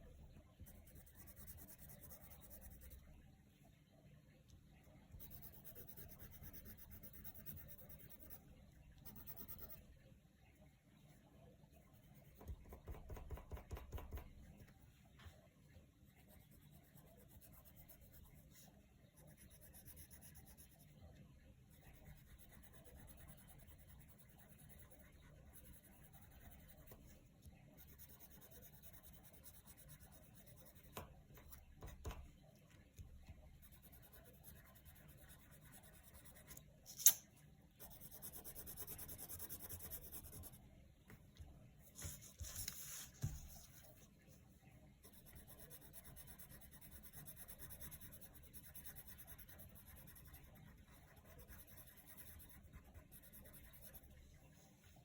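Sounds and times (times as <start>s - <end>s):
pencil scratching on paper: 0.6s - 3.1s, 5.1s - 8.4s, 9.0s - 9.9s, 16.1s - 37.2s, 37.8s - 40.6s, 41.8s - 44.1s, 45.0s - 55.0s
sharp click: 36.9s - 37.3s.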